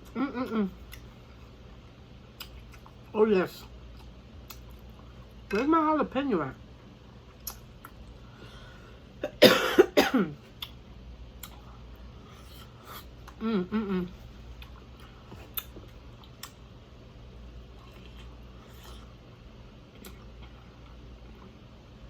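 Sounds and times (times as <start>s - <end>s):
voiced mm-mm: 0.0s - 1.0s, 13.0s - 14.3s
woman coughing: 9.2s - 10.4s.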